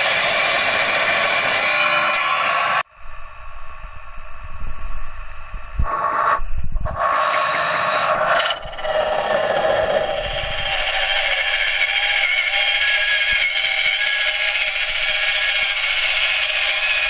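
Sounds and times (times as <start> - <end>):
cut-off saw cutting metal: 0.0 - 2.9, 7.0 - 17.0.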